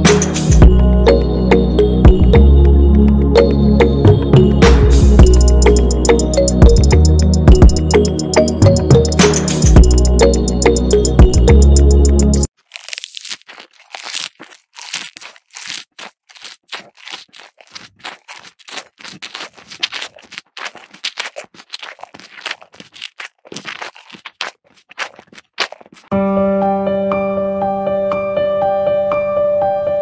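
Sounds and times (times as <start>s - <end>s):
cattle munching grass: 12.5s - 26.1s.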